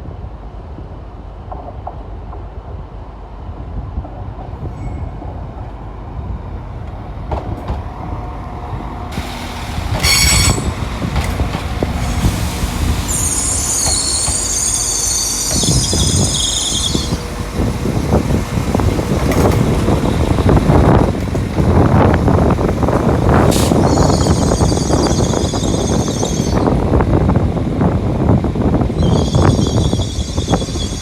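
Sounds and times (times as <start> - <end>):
train rumbling on rails: 0.0 - 31.0
steel wheels squealing: 9.2 - 18.0, 23.3 - 26.8, 28.9 - 31.0.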